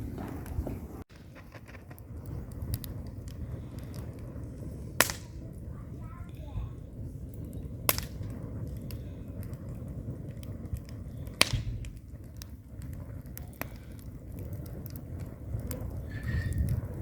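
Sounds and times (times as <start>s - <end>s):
fire popping: 0.0s - 17.0s
fire rumbling and crackling: 0.0s - 17.0s.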